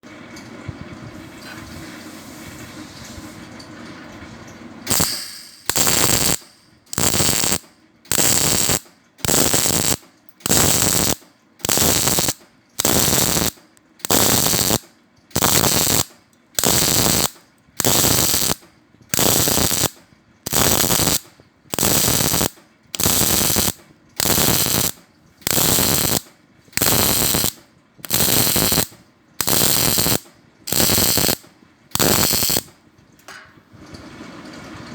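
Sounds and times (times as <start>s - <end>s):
welding arc crackling: 4.9s - 32.8s.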